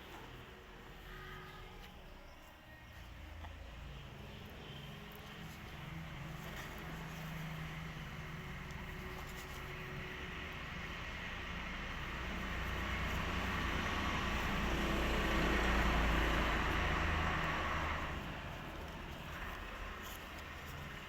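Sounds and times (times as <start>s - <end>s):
vehicle passing by: 3.0s - 21.0s.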